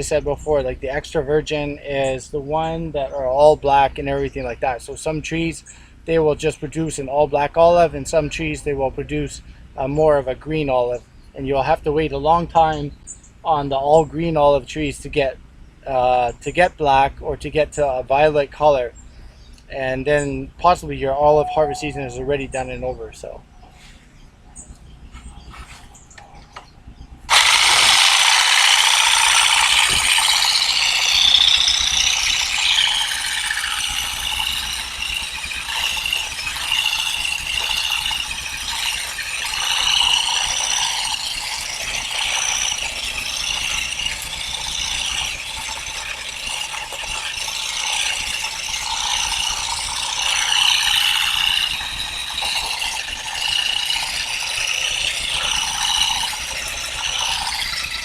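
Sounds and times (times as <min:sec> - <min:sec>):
olive harvesting tool clattering: 0:27.3 - 0:58.0.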